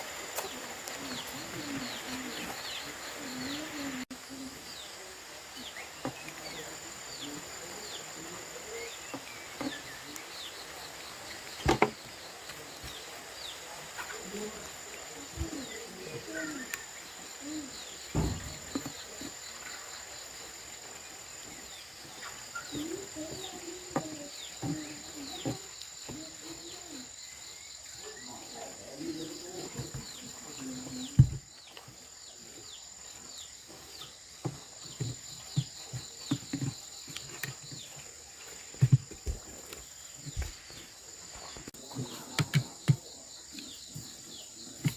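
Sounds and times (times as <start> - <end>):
high insect trill: 0.0 - 44.9
wavering low animal sounds: 0.2 - 9.0.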